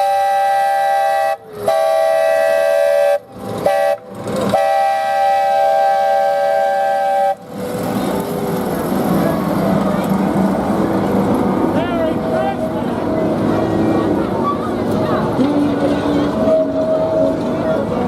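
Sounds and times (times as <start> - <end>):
train horn blasts: 0.0 - 7.4.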